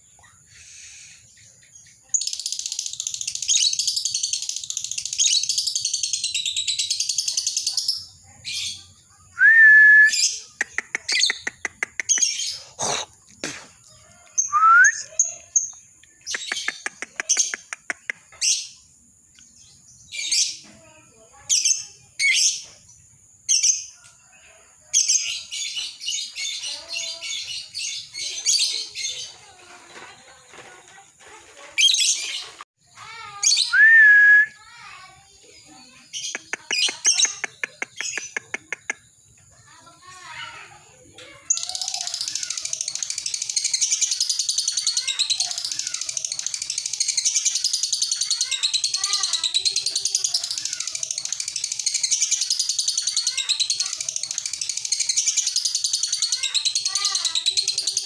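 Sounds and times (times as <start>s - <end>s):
fast rattling bird chatter: 0.0s - 9.3s, 10.2s - 24.0s, 24.9s - 33.7s, 34.7s - 58.0s
lovebird chirps and squeaks: 2.1s - 8.8s, 31.8s - 32.6s, 41.5s - 58.0s
rising bird whistle: 9.4s - 10.4s, 14.4s - 15.1s, 33.6s - 34.6s.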